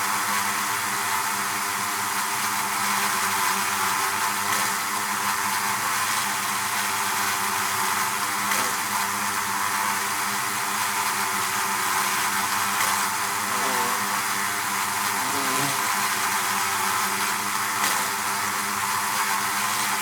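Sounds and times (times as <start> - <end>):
honeybees buzzing: 12.2 - 17.4.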